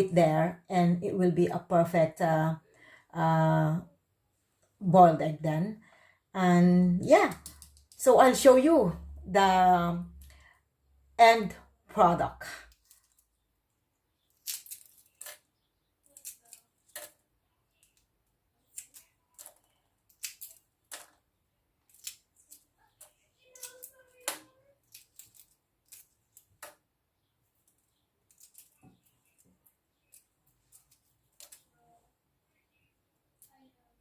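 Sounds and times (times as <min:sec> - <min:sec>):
egg shell cracking and peeling: 0:07.3 - 0:08.0, 0:14.2 - 0:26.9, 0:27.6 - 0:31.7.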